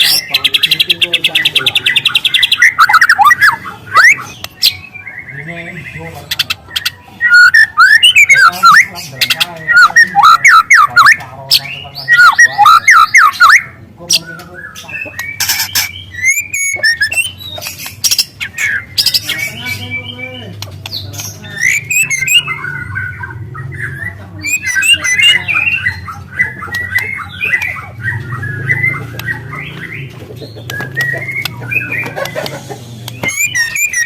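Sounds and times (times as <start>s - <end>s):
bird singing whistled sweeps: 7.2s - 8.9s, 12.0s - 13.6s, 15.4s - 17.4s, 21.5s - 23.3s, 23.9s - 26.0s, 33.2s - 34.0s.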